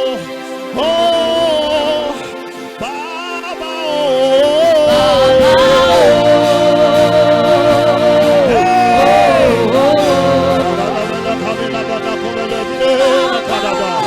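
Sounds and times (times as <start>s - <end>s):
solo voice singing: 3.6s - 14.0s
held instrumental chords: 4.4s - 14.0s.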